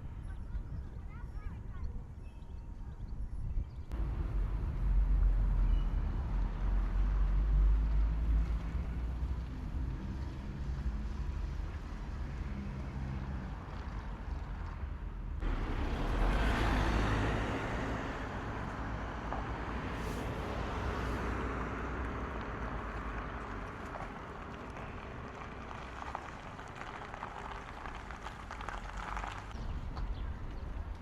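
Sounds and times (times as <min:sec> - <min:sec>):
car passing by: 0:15.4 - 0:29.6.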